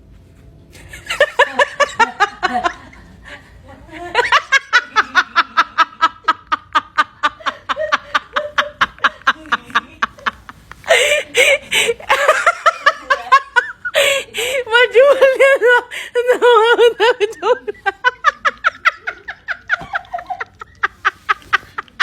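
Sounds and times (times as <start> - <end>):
person laughing in rapid bursts: 4.0 - 22.0.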